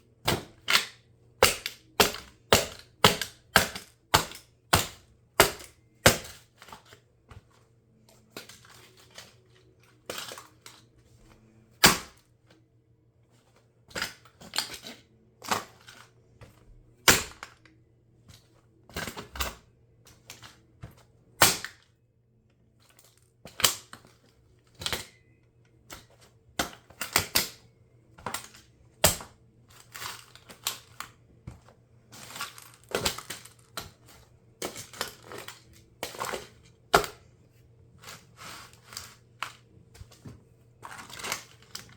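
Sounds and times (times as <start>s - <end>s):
faint steady hum: 0.0s - 41.9s
plastic toy cracking and snapping: 23.5s - 24.1s.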